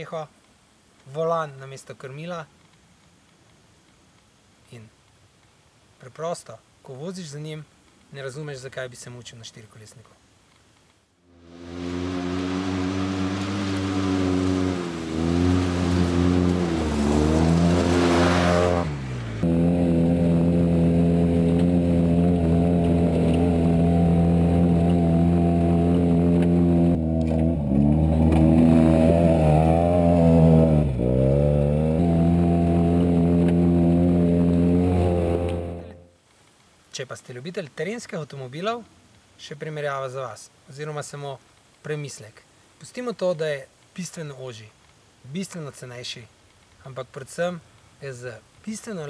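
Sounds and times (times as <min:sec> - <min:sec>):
utility vehicle engine revving high: 0:11.3 - 0:36.1.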